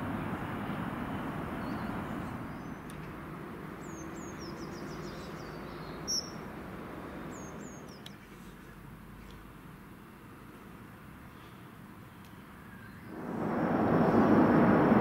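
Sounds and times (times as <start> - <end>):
freight train rumble: 0.0 - 3.9, 13.1 - 15.0
small birds chirping: 1.5 - 6.5, 7.2 - 9.4, 11.3 - 13.2
faint steady hum: 7.7 - 15.0.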